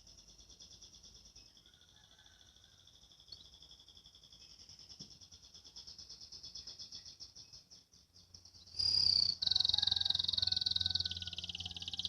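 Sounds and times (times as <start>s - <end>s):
canary singing trills: 6.6s - 12.0s.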